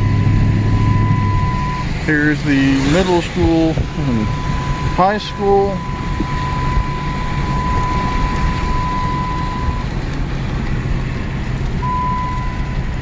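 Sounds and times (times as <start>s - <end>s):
car warning chime beep: 0.0s - 1.9s, 2.6s - 9.9s, 11.8s - 13.0s
car engine: 0.0s - 13.0s
road noise: 0.0s - 13.0s.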